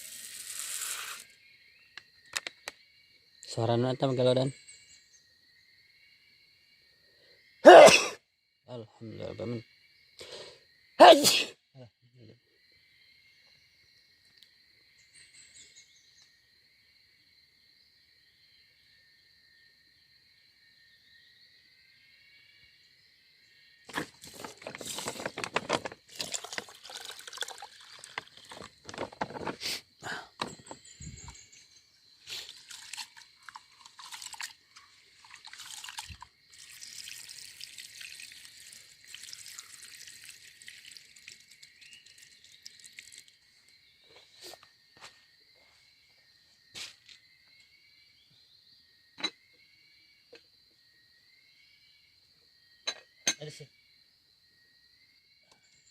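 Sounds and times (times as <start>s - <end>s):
water splashing and trickling: 0.0s - 1.3s, 23.9s - 31.5s, 32.2s - 43.7s
insects trilling: 0.0s - 55.9s.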